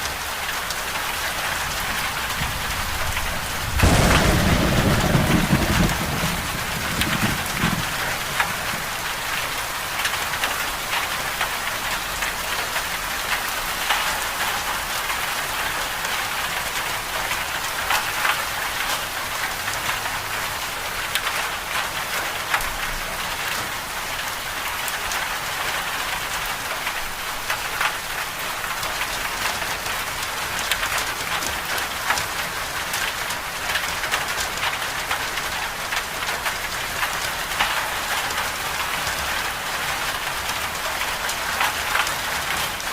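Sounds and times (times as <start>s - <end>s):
rain falling: 0.0s - 42.9s
low thunder rumble: 2.2s - 9.2s.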